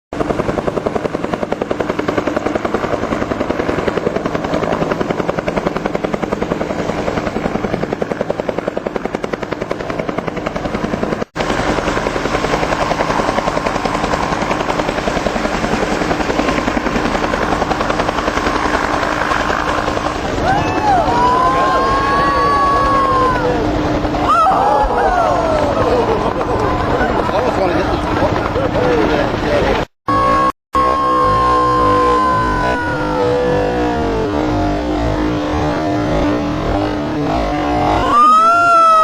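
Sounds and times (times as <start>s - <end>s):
helicopter rotor beating: 0.1s - 39.0s
turbine whine: 10.0s - 39.0s.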